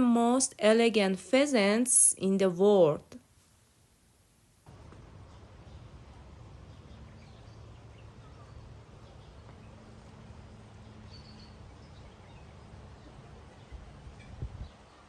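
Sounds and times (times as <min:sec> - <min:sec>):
steady low hum: 0:03.3 - 0:15.0
distant bird chirps: 0:04.7 - 0:15.0.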